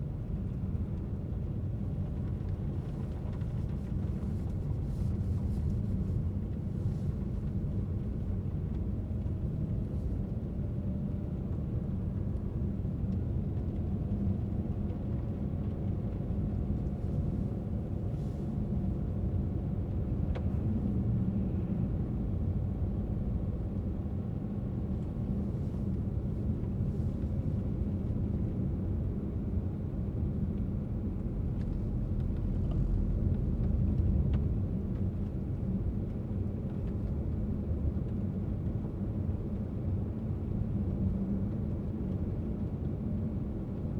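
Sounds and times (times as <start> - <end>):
car driving rumble: 11.4 - 42.2.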